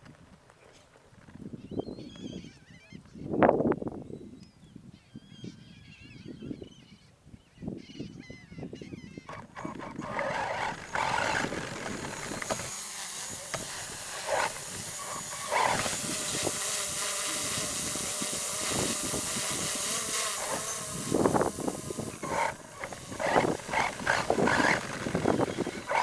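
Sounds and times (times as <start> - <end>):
toy truck motor whining: 9.3 - 26.0.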